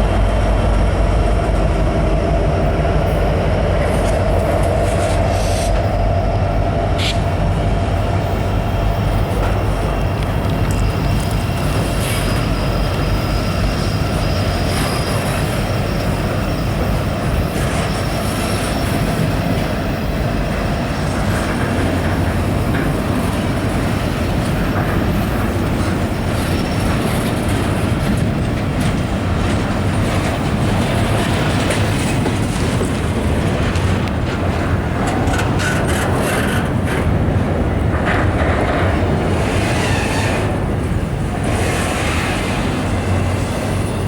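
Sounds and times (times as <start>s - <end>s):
train wheels rumbling on rail: 0.0s - 44.0s
high wheel squeal: 8.9s - 28.4s, 38.7s - 44.0s.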